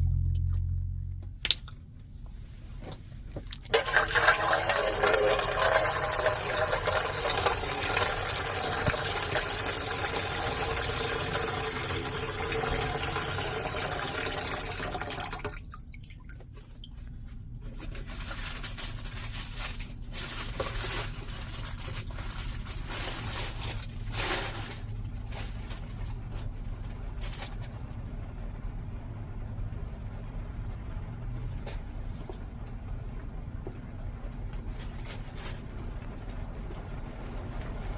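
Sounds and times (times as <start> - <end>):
low steady hum: 0.0 - 37.9
water spatter with ticks: 3.5 - 16.9
heavy rain and running water: 3.7 - 15.6.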